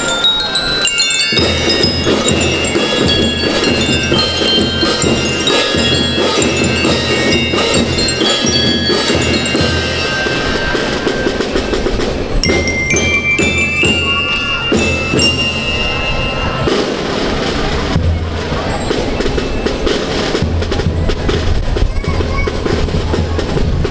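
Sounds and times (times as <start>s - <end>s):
bell lyres struck notes: 0.0s - 20.5s
school band drums: 0.0s - 23.9s.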